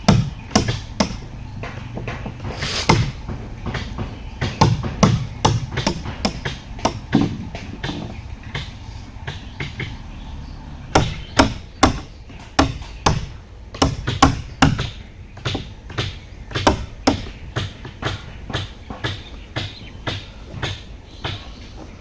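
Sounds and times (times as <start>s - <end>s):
hand tool blows: 2.5s - 3.2s.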